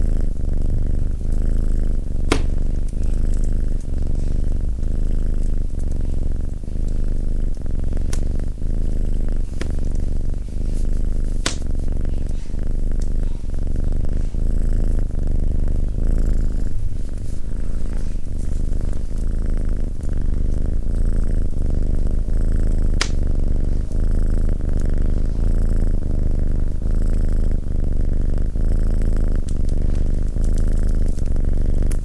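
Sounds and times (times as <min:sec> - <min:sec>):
cat purring: 0:00.0 - 0:32.0
sharp pop: 0:02.3 - 0:02.7, 0:11.4 - 0:11.7.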